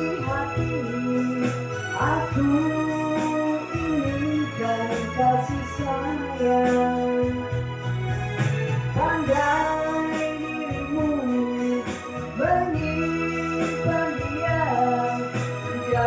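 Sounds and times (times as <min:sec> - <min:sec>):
pop song with keyboard and bass: 0:00.0 - 0:16.0.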